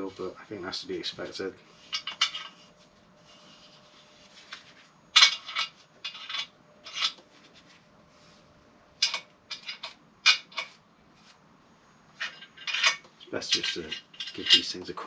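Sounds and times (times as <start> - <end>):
rubbing scrapes: 1.6 - 4.8.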